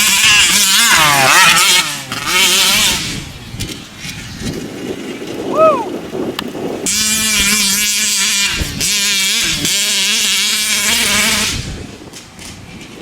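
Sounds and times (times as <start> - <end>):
high-pitched two-stroke engine: 0.0 - 5.2, 6.8 - 12.0.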